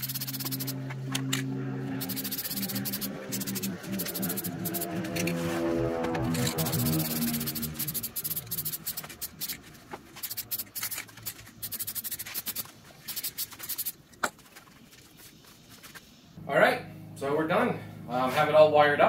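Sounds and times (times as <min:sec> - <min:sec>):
sandpaper rubbing on wood: 0:00.0 - 0:00.8, 0:02.0 - 0:05.7, 0:06.3 - 0:14.0.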